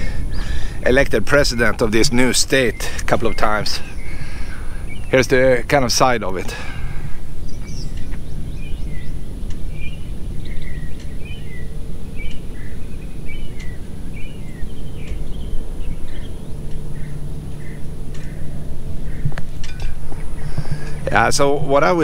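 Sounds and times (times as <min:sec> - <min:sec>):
birds chirping: 0:00.0 - 0:22.0
low outdoor rumble: 0:00.0 - 0:22.0.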